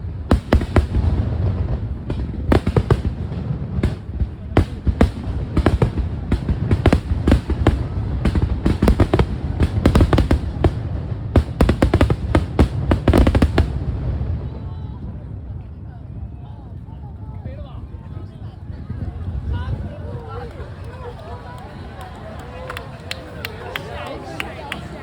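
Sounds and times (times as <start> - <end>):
fireworks bangs and crackles: 0.0 - 20.5.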